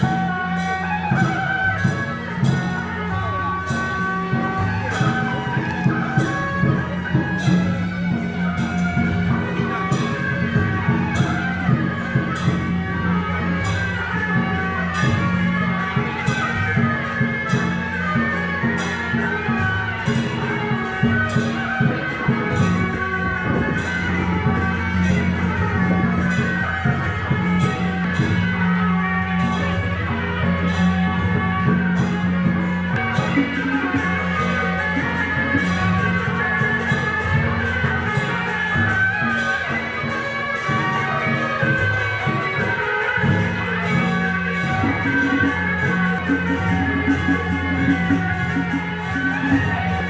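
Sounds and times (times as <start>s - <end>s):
drums gongs and cymbals: 0.0s - 50.0s
shrill reed horn melody: 17.5s - 50.0s.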